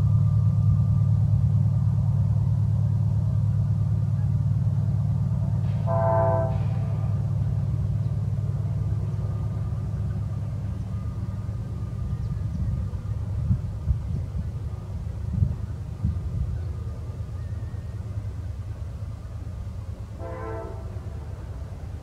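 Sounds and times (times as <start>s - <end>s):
diesel locomotives rumbling: 0.0s - 22.0s
locomotive horn blast: 5.7s - 7.3s, 20.2s - 21.8s.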